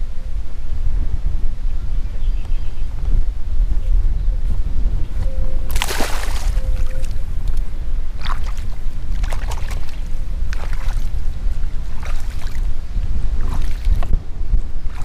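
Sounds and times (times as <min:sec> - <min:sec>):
low rumble: 0:00.0 - 0:15.0
water splashing against boat: 0:05.7 - 0:14.2, 0:14.8 - 0:15.0.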